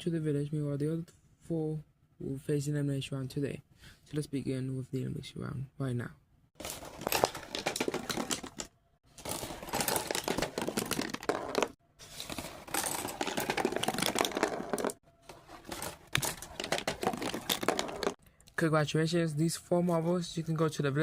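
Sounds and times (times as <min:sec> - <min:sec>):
marbles rattling down track: 0:06.6 - 0:15.0.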